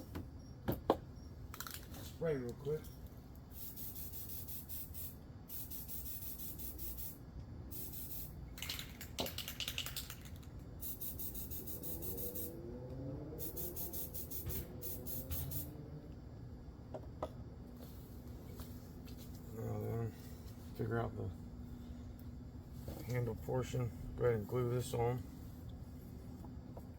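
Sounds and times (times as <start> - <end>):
aerosol spray can hissing: 3.6 - 8.4, 10.8 - 12.5, 13.4 - 15.8.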